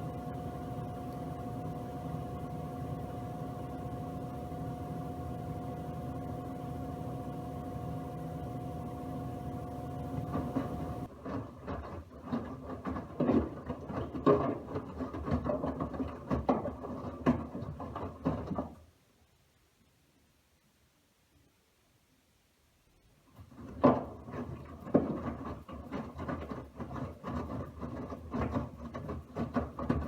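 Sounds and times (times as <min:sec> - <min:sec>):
washing machine humming: 0:00.0 - 0:11.1.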